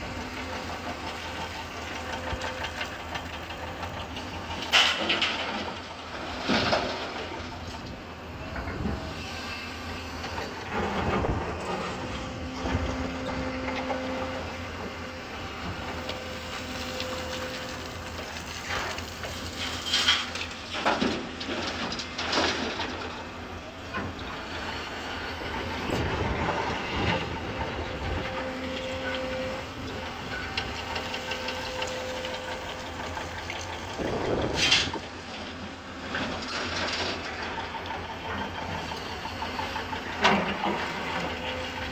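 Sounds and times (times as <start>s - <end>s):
excavator diesel engine running: 0.0s - 41.9s
hydraulic whine: 8.2s - 22.0s, 22.6s - 36.9s.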